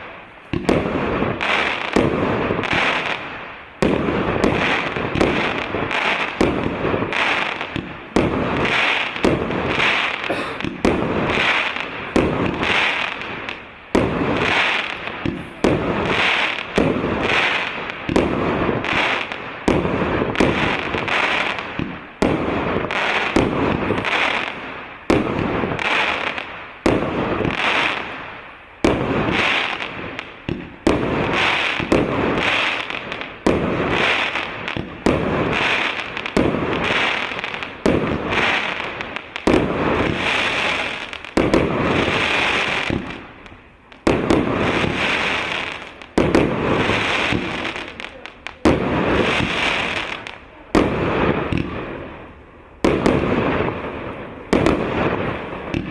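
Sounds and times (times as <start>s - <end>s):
firework bursts: 0.0s - 55.9s.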